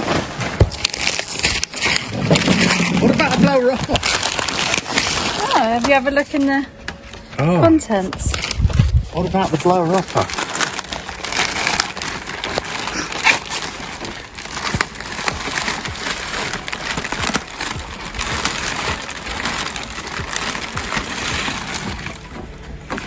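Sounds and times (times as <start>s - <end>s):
plastic bags rustling and crinkling: 0.0s - 23.0s.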